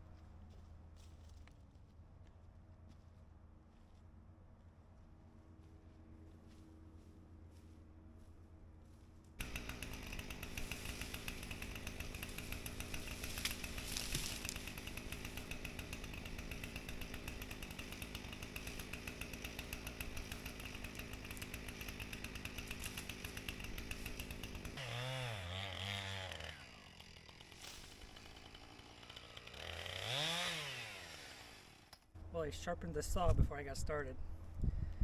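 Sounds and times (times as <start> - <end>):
chainsaw cutting and idling: 9.4 - 34.0.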